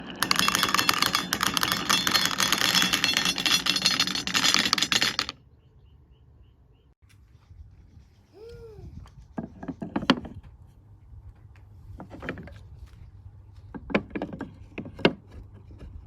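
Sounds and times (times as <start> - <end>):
glass marbles clattering on wood: 0.0 - 5.4.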